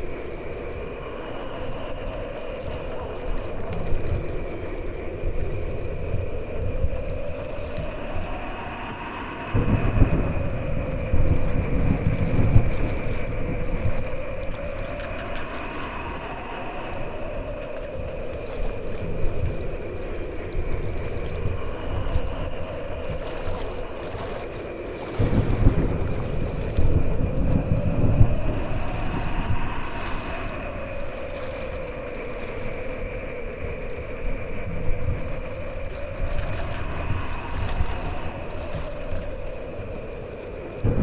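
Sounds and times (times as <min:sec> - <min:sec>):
steady wind: 0:00.0 - 0:41.0
thunder rumbling: 0:00.0 - 0:41.0.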